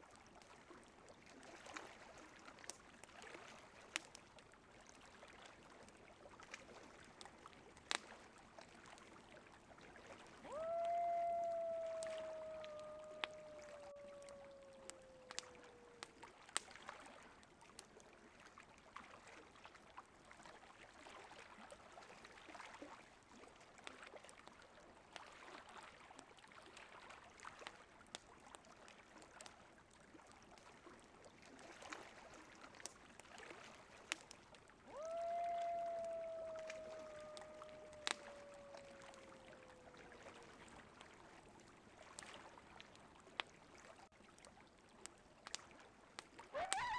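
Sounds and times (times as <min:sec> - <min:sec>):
campfire crackling and popping: 0:02.6 - 0:04.9, 0:05.6 - 0:08.2, 0:10.5 - 0:16.8, 0:34.1 - 0:40.4, 0:44.4 - 0:46.9
coyote howling: 0:10.5 - 0:16.2, 0:34.9 - 0:40.4, 0:46.5 - 0:46.9.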